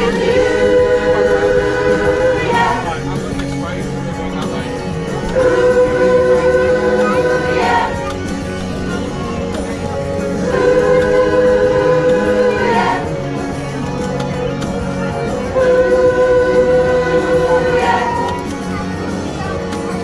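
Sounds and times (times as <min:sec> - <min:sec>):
choir singing long held notes: 0:00.0 - 0:20.0
pop-rock backing track: 0:00.0 - 0:20.0.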